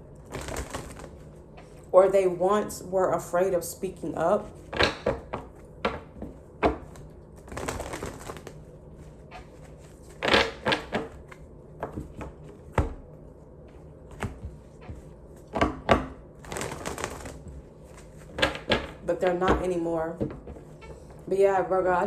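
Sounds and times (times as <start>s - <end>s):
rustling: 0.2s - 2.0s, 7.0s - 11.4s, 16.4s - 18.6s.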